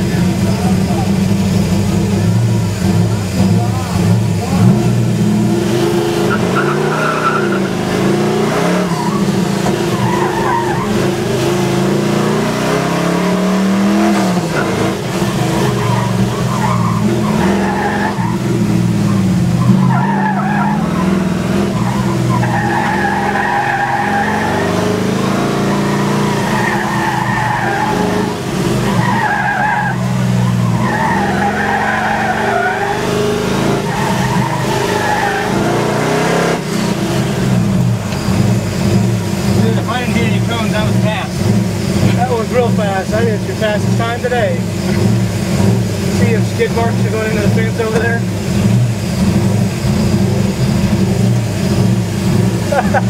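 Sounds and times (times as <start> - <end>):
car engine revving: 0.0 - 53.0
tyres squealing: 2.9 - 48.4.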